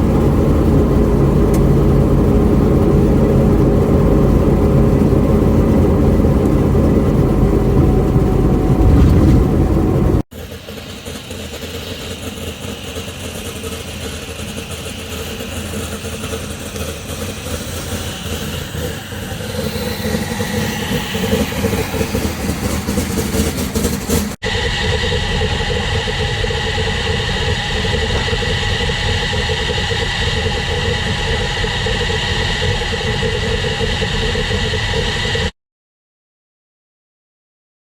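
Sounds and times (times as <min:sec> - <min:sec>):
car engine running: 0:00.0 - 0:24.4.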